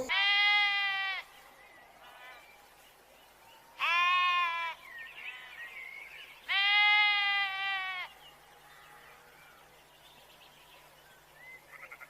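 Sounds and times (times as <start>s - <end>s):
goat bleating: 0.0s - 1.3s, 3.8s - 4.8s, 6.5s - 8.1s, 11.7s - 12.0s.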